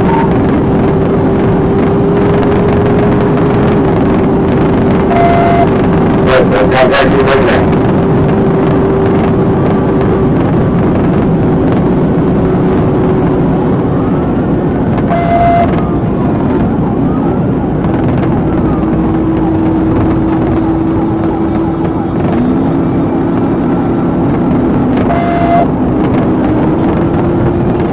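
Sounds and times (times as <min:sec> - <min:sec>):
siren wailing faintly: 0:00.0 - 0:08.6, 0:12.5 - 0:27.9
car engine and road noise: 0:00.0 - 0:27.9
short beep: 0:05.1 - 0:05.7, 0:15.1 - 0:15.8, 0:25.1 - 0:25.7.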